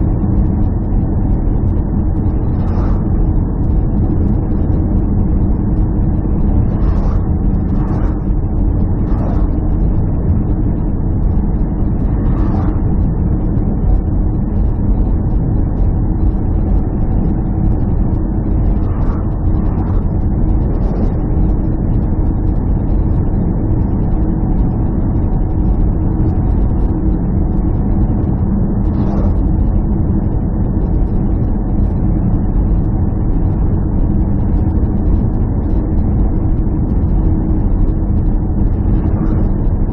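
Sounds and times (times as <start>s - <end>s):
low engine drone: 0.0s - 39.9s.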